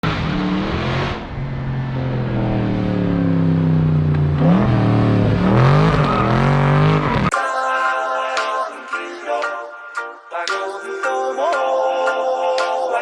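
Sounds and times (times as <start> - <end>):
loud car exhaust revving: 0.0 - 7.3.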